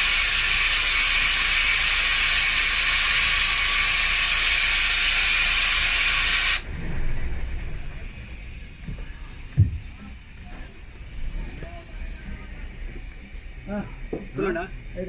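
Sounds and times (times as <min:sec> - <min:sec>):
compressed air hissing: 0:00.0 - 0:06.6
low hum: 0:06.6 - 0:15.0.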